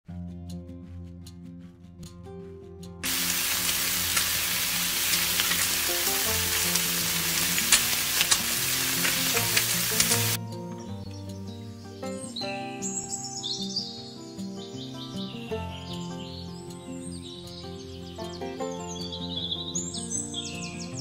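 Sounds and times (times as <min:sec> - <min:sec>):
background music: 0:00.1 - 0:21.0
battered food sizzling in oil: 0:03.0 - 0:10.4.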